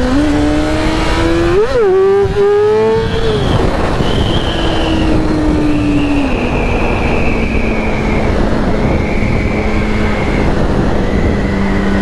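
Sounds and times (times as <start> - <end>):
wind rush: 0.0 - 12.0.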